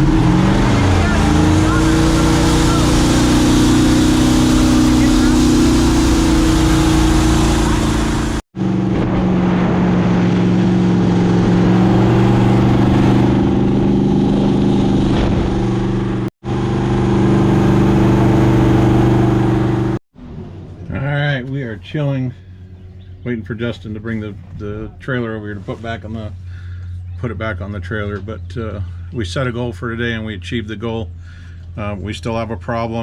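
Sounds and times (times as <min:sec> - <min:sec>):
jet boat engine drone: 0:00.0 - 0:21.1.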